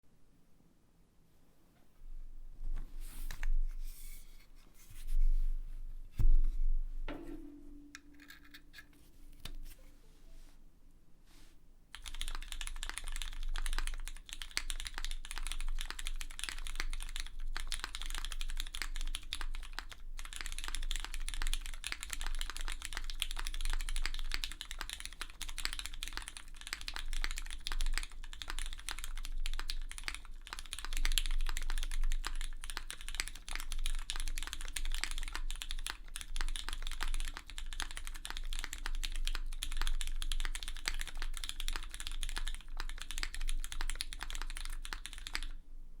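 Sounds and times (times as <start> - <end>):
mechanical keyboard typing: 11.9 - 45.6.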